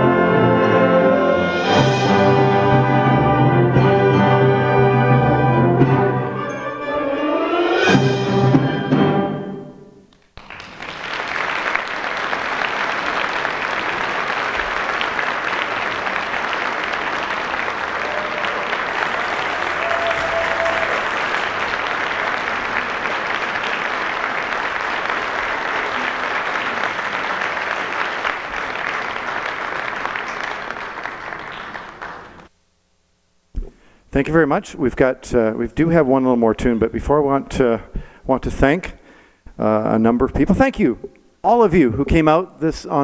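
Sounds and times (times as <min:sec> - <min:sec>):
audience applauding: 0:10.1 - 0:32.5.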